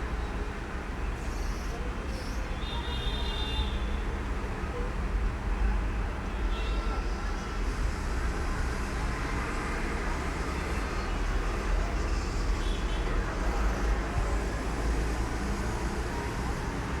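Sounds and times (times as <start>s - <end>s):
road traffic rumble: 7.0s - 17.0s.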